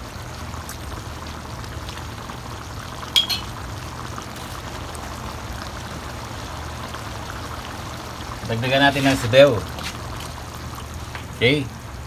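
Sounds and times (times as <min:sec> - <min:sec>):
stew bubbling in a pan: 0:00.0 - 0:12.0
metal ladle clinking against pan: 0:03.2 - 0:03.5.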